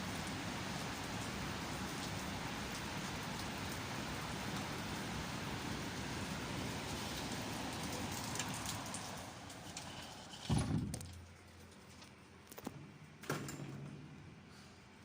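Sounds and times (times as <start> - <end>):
heavy rain hissing: 0.0 - 10.4.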